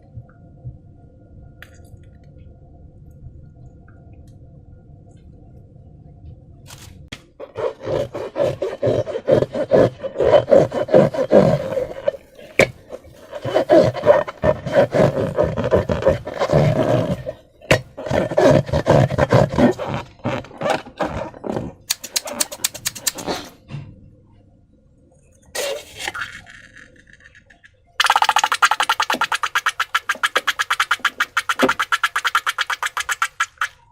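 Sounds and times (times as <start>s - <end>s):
slime squeezed by hand: 7.7s - 23.5s, 28.0s - 33.8s.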